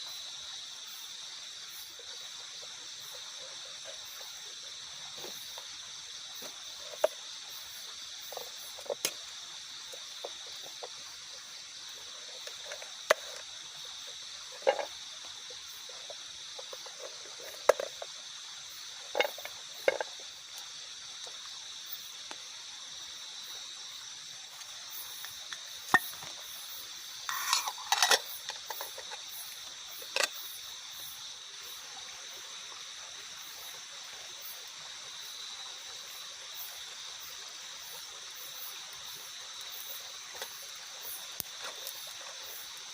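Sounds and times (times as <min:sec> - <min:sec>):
night insects chorus: 0:00.0 - 0:42.9
sharp clinks and knocks: 0:27.3 - 0:29.2.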